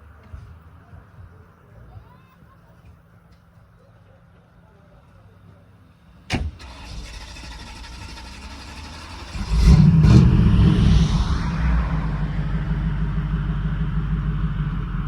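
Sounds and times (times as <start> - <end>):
car engine starting and running: 6.3 - 15.0.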